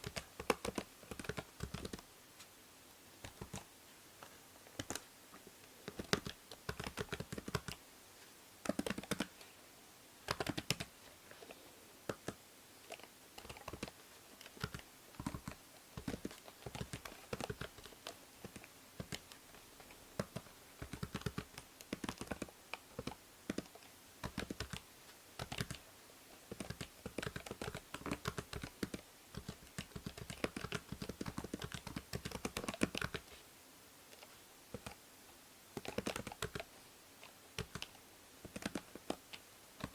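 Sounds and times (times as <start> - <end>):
keyboard typing: 0.0 - 2.0, 3.2 - 3.7, 4.8 - 5.0, 5.8 - 7.8, 8.6 - 9.3, 10.3 - 10.9, 12.1 - 19.4, 20.2 - 24.8, 25.4 - 25.8, 26.5 - 33.3, 34.1 - 35.0, 35.8 - 36.7, 37.6 - 39.9
faint steady hiss: 0.0 - 39.9.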